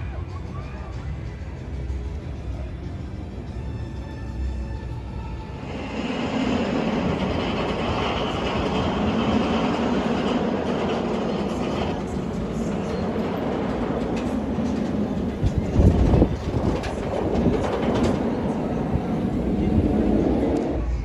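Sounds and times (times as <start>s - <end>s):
roller coaster rattling on track: 4.8s - 21.0s.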